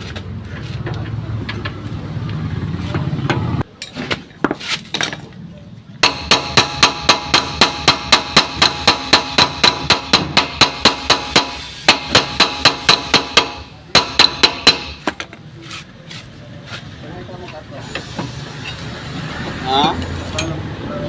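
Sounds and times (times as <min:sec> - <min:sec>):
hammer striking metal: 0:06.0 - 0:15.3.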